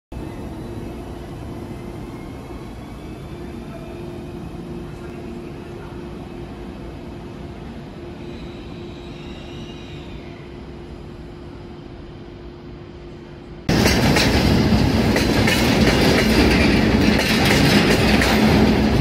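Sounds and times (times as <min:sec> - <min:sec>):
electric train humming: 0:00.1 - 0:19.0
faint high whines: 0:00.2 - 0:13.6.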